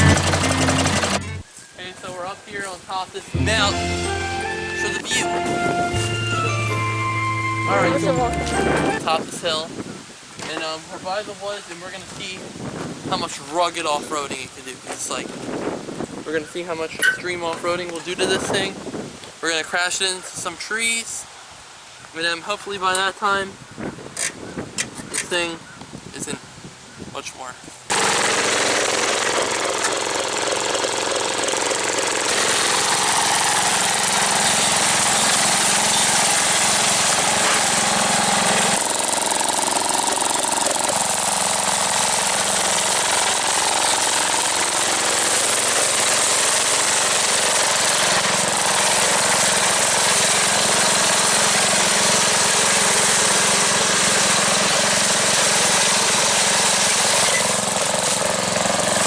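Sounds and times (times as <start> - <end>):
lawn tractor engine rattling: 0.0 - 1.5, 27.9 - 59.0.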